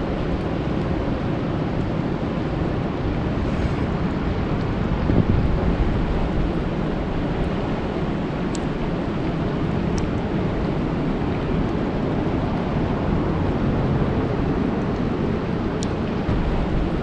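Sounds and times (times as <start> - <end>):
rain falling on a lake: 4.2 - 17.0.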